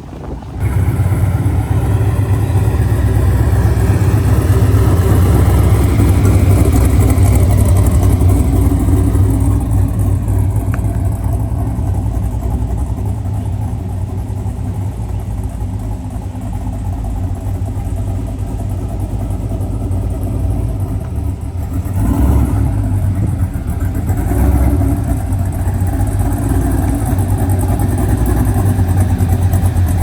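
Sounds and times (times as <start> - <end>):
truck engine running: 0.0 - 30.0.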